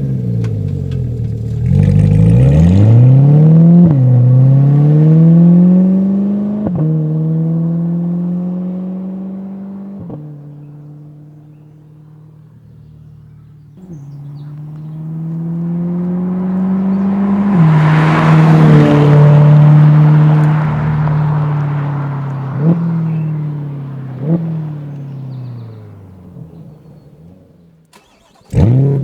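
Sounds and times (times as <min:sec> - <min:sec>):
car engine accelerating: 0:00.0 - 0:29.0
engine blips: 0:11.5 - 0:27.1, 0:27.9 - 0:28.9.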